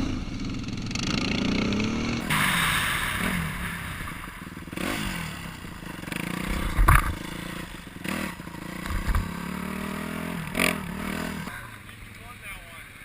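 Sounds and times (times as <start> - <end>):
off-road engine revving: 0.0 - 12.9
loud low thumps: 1.8 - 7.9.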